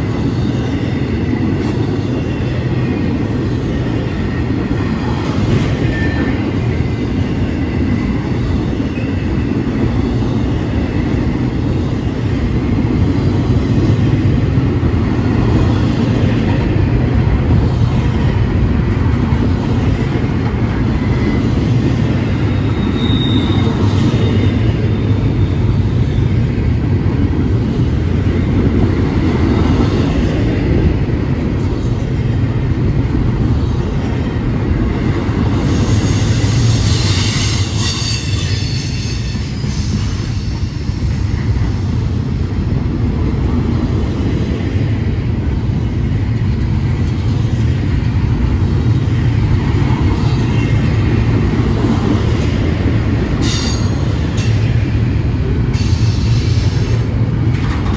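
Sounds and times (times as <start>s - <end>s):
train wheels rumbling on rail: 0.0s - 57.9s
wheel squeal: 22.5s - 25.6s.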